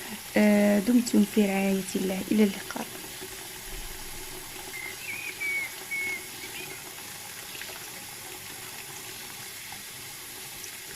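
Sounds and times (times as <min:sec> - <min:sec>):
running water: 0:00.0 - 0:10.9
short high whistles: 0:04.8 - 0:06.7.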